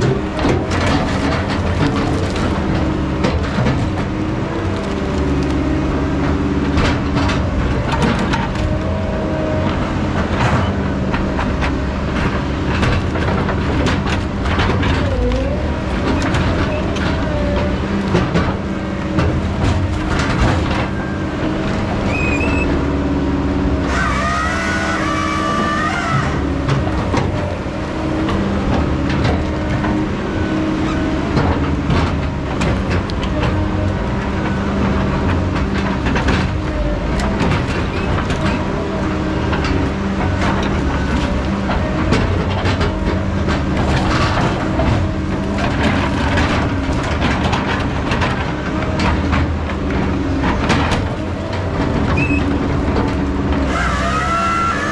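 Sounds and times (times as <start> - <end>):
metal clanks and knocks: 0.0 - 23.0, 25.7 - 54.9
diesel engine running: 0.0 - 54.9
high wavering squeal: 53.7 - 54.9.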